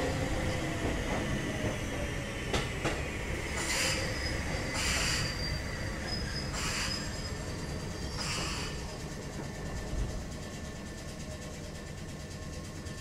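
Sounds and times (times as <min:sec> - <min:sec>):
train running gear rumble: 0:00.0 - 0:13.0
hiss with faint high squeal: 0:03.1 - 0:13.0.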